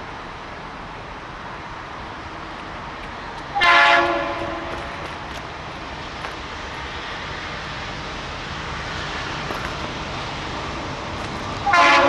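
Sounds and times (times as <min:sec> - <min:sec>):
freight train rumbling: 0:00.0 - 0:12.0
locomotive air horn: 0:03.5 - 0:05.0, 0:11.6 - 0:12.0.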